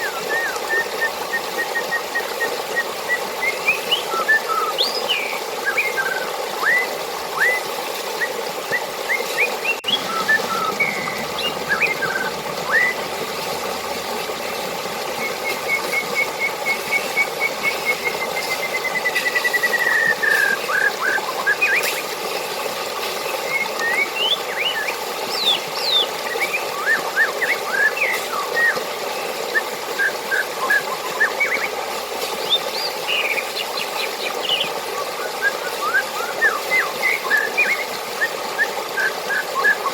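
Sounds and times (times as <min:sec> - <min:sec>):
water rushing: 0:00.0 - 0:39.9
birds chirping: 0:08.8 - 0:22.1, 0:23.2 - 0:28.8, 0:30.0 - 0:34.9.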